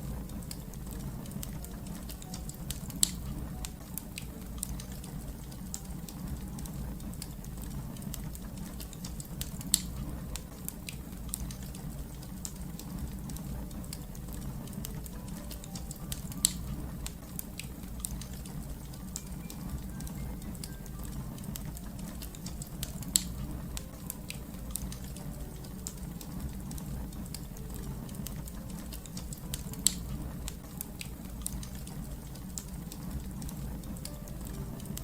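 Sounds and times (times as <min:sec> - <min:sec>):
fire rumbling and crackling: 0:00.0 - 0:35.0
fire sharp pops: 0:07.1 - 0:18.6, 0:21.4 - 0:34.1.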